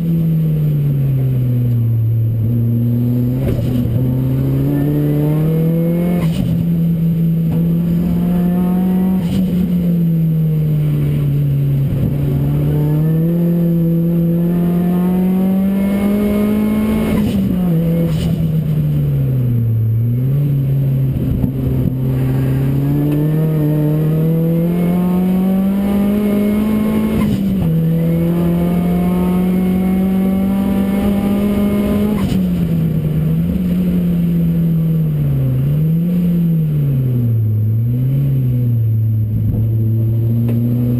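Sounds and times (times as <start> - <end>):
race car engine revving: 0.8 - 40.9.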